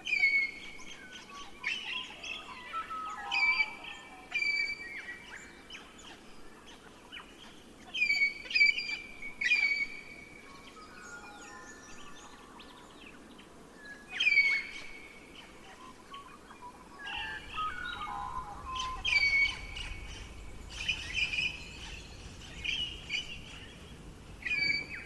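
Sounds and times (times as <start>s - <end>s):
faint steady background hiss: 0.0s - 25.0s
bird chirps: 9.5s - 25.0s
birds harsh calls: 14.2s - 25.0s.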